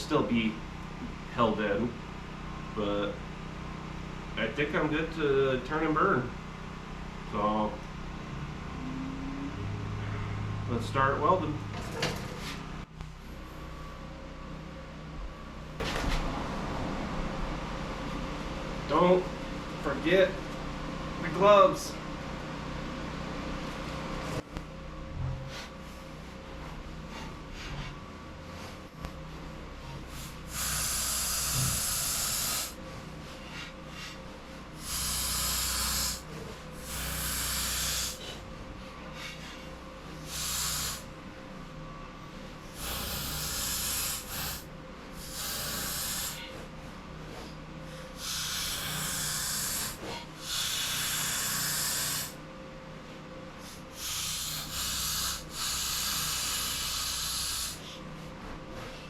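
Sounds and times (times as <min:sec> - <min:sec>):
arc welding crackling hiss: 0:30.1 - 0:32.8, 0:34.8 - 0:38.3, 0:40.2 - 0:41.1, 0:42.7 - 0:44.6, 0:45.2 - 0:46.5, 0:48.2 - 0:52.4, 0:53.9 - 0:57.8.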